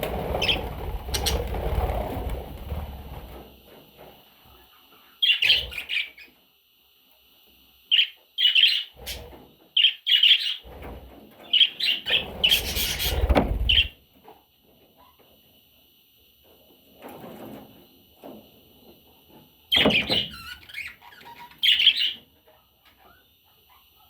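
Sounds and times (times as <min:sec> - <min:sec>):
budgerigar chirping: 0:07.9 - 0:08.9, 0:09.8 - 0:10.6, 0:19.8 - 0:22.2.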